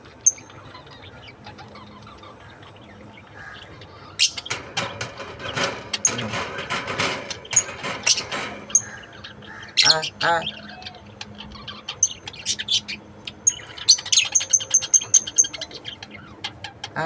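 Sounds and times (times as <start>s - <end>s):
lovebirds chirping: 0.0s - 17.0s
lovebirds fluttering wings: 4.2s - 10.1s.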